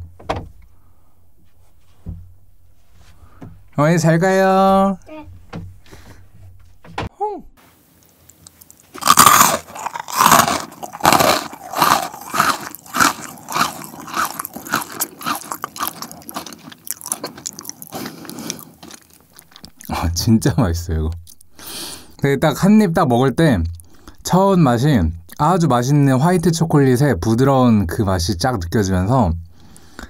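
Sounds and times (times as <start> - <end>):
crunchy chewing: 8.2 - 20.2.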